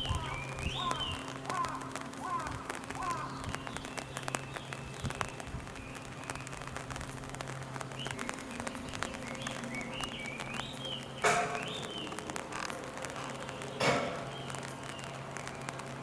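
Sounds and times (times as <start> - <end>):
bird chirping: 0.0 - 1.3, 7.9 - 12.3
raindrops ticking: 0.0 - 16.0.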